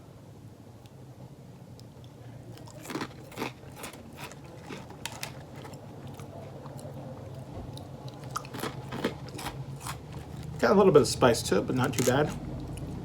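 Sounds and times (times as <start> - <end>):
person chewing crisp cracker: 1.7 - 10.8, 11.7 - 13.0.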